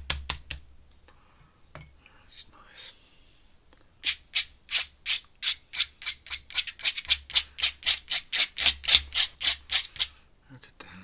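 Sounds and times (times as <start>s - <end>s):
scratchy drawing strokes: 8.6s - 9.9s.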